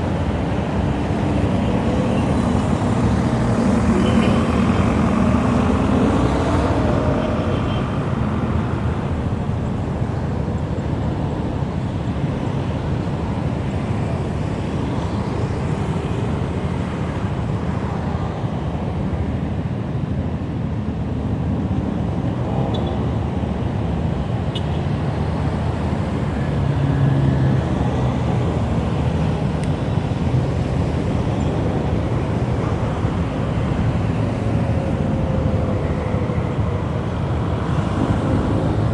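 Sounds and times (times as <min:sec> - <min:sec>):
traffic noise: 0:00.0 - 0:38.9
wind and road noise: 0:00.0 - 0:38.9.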